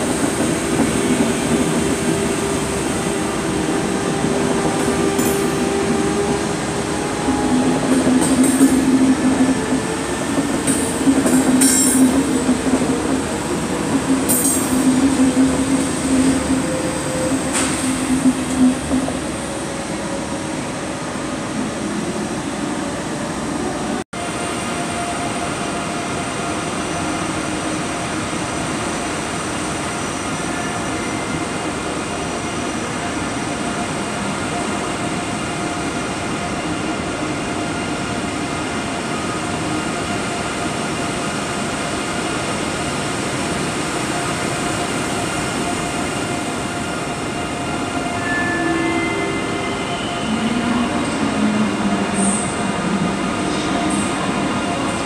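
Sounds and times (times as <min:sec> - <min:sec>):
train rolling past rumbling: 0:00.0 - 0:35.8.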